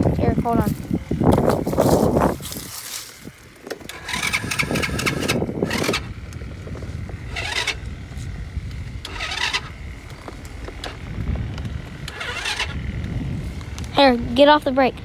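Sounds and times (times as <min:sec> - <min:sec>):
electric starter cranking: 0:01.0 - 0:14.4.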